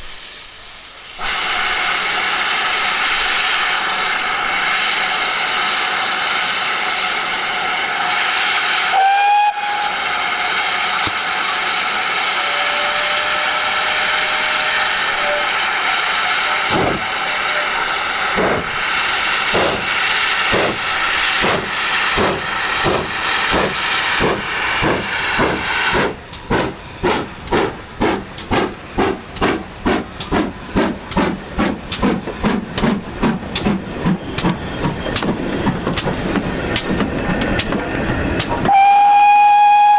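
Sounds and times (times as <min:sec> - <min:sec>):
hiss of steam: 0:00.0 - 0:39.9
steam locomotive whistle: 0:01.2 - 0:26.1, 0:38.6 - 0:39.9
locomotive exhaust beats: 0:08.4 - 0:39.9.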